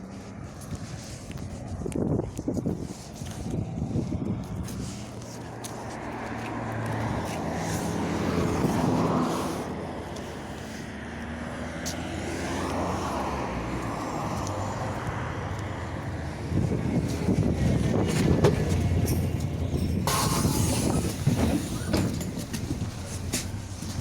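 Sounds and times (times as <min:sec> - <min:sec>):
bus engine accelerating: 0:03.5 - 0:24.0
rattles: 0:18.0 - 0:24.0.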